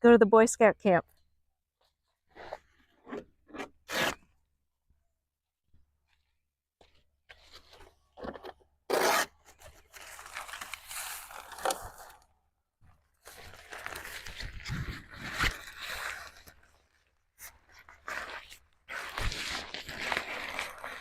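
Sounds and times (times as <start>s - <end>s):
fabric rustling and crinkling: 13.2s - 21.0s
velcro ripping apart: 18.0s - 21.0s.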